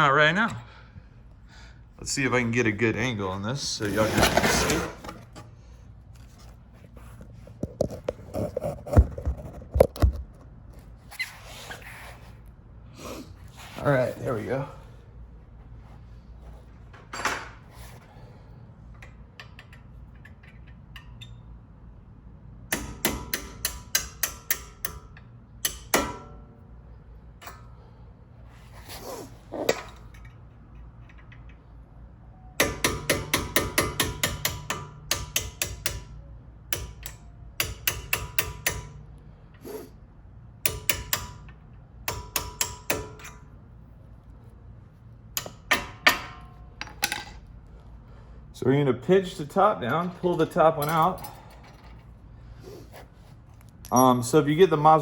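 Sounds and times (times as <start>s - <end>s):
hammer tapping metal punch: 22.7s - 26.5s, 32.6s - 39.0s, 40.6s - 43.5s, 45.3s - 47.4s.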